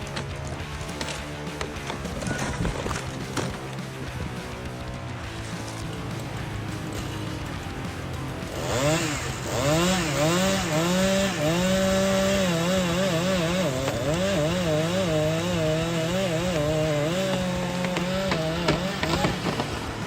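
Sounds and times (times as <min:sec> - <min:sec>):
background music: 0:00.0 - 0:20.0
chainsaw cutting wood: 0:00.0 - 0:20.0.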